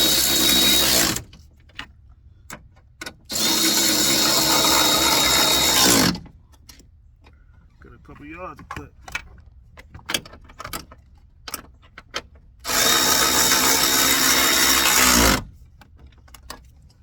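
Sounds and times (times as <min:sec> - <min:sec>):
power drill whining: 0:00.0 - 0:01.3, 0:03.3 - 0:06.2, 0:12.6 - 0:15.5
tools clicking and knocking: 0:08.2 - 0:14.9.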